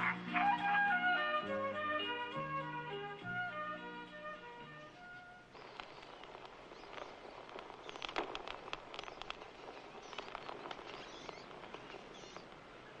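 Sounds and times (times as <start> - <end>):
birds chirping: 3.7 - 13.0.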